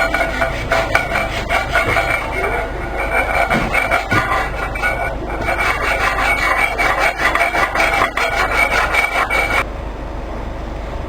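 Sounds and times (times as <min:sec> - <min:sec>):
wood being sanded by hand: 0:00.0 - 0:09.6
steady background noise: 0:00.0 - 0:11.0.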